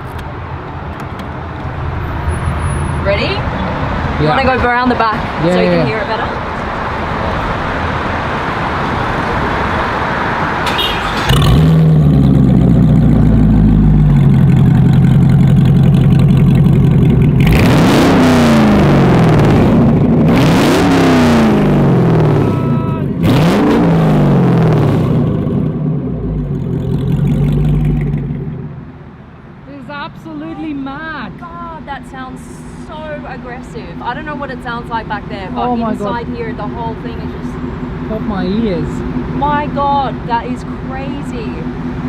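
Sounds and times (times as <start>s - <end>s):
car engine starting and idling: 0.0s - 42.0s
engine revving: 7.1s - 29.0s, 31.8s - 42.0s.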